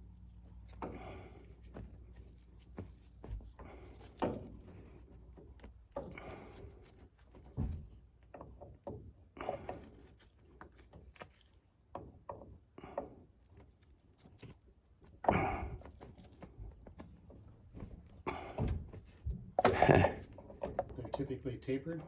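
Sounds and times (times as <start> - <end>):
rustling: 0.0 - 8.2, 9.5 - 11.9, 13.3 - 21.1.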